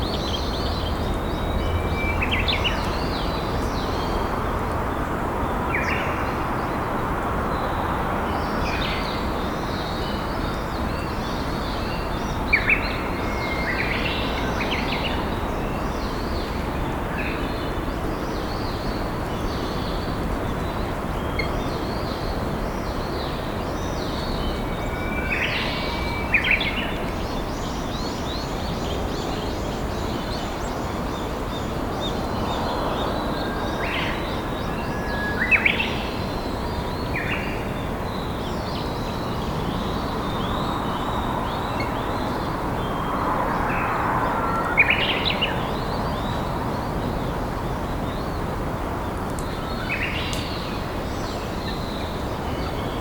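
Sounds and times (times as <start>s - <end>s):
songbirds chirping: 7.4s - 53.0s.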